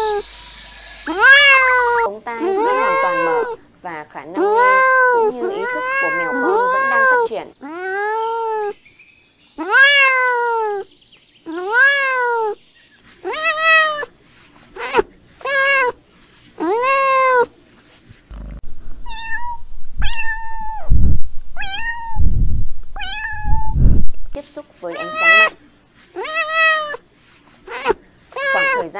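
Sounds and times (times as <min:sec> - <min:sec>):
kittens meowing: 0:00.0 - 0:00.4, 0:01.0 - 0:03.6, 0:04.4 - 0:08.8, 0:09.6 - 0:10.9, 0:11.5 - 0:12.6, 0:13.2 - 0:14.1, 0:14.7 - 0:16.0, 0:16.6 - 0:17.5, 0:19.1 - 0:20.9, 0:21.6 - 0:22.2, 0:23.0 - 0:23.8, 0:24.9 - 0:25.6, 0:26.2 - 0:27.0, 0:27.7 - 0:28.9.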